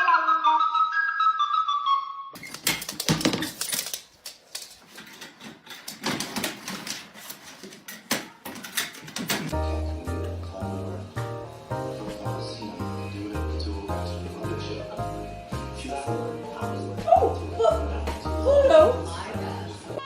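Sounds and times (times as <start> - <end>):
light flute-like melody: 0.0 - 2.4
clicking and clattering: 2.4 - 9.5.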